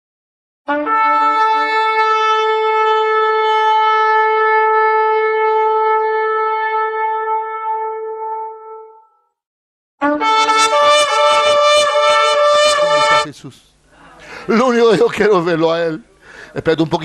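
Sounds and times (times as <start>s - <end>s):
ram's horn blast: 0.7s - 9.0s, 10.0s - 13.3s.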